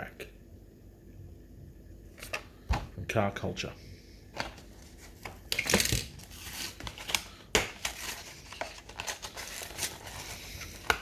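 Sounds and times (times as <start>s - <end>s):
plastic packaging crinkling: 4.4s - 11.0s.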